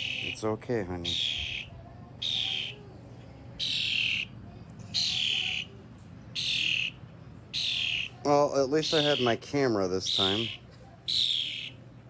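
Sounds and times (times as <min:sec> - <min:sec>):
bird giving harsh hissing calls: 0:00.0 - 0:00.4, 0:01.1 - 0:02.8, 0:03.6 - 0:04.3, 0:05.0 - 0:05.7, 0:06.4 - 0:07.0, 0:07.6 - 0:08.2, 0:08.9 - 0:09.4, 0:10.1 - 0:11.8.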